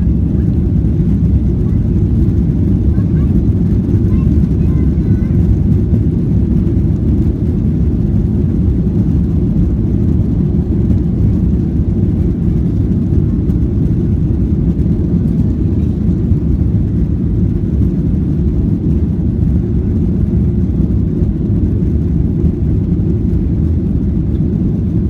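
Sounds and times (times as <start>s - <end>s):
aeroplane engines rumbling: 0.0s - 25.0s.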